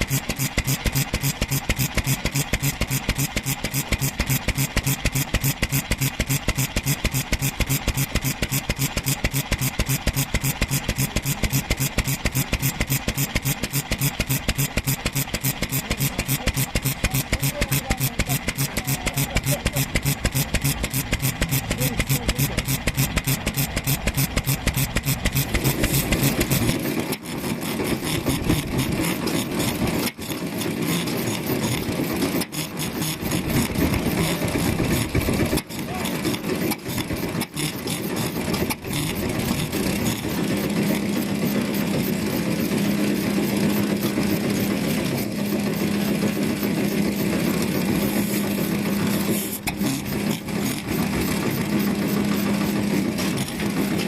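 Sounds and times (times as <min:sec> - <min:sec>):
steady hum: 0:00.0 - 0:26.8
stationary engines running: 0:00.0 - 0:54.0.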